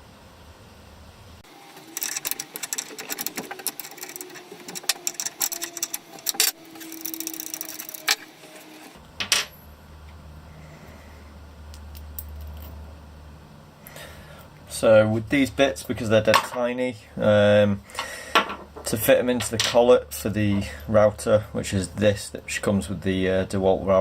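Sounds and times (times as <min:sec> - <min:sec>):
small metal and plastic parts rattling: 0:01.7 - 0:08.3.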